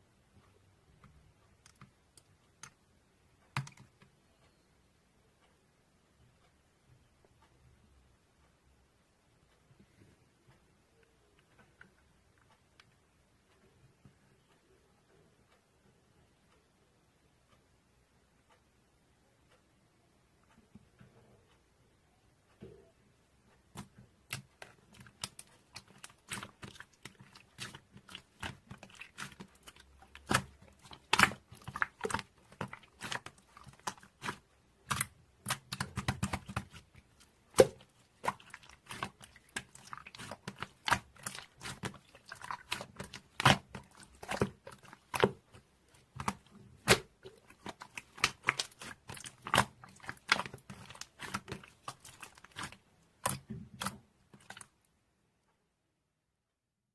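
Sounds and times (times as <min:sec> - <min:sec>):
slime popping and clicking: 0:24.3 - 0:36.9.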